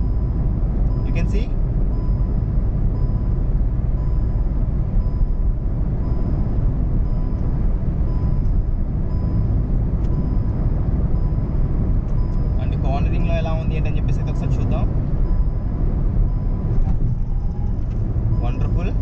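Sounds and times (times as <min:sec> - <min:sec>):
warning chime beeping: 0:00.0 - 0:19.0
tyre and wind noise in car: 0:13.9 - 0:19.0.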